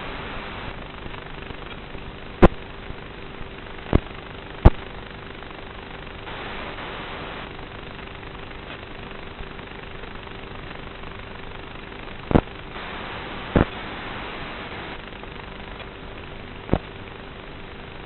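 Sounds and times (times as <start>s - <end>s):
faint steady hum: 0.0s - 18.0s
static hiss: 0.0s - 18.0s
sharp pops: 13.5s - 13.8s.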